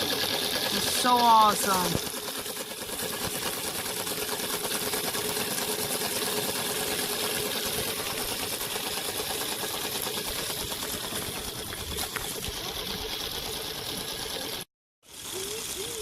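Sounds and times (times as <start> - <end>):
toy car electric motor whirring: 0.0 - 16.0
wheels spinning through mud: 0.0 - 16.0.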